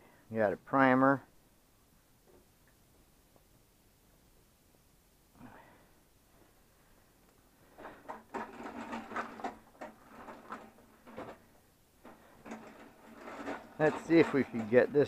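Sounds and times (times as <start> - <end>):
small machine clicking and rattling: 7.8 - 15.0.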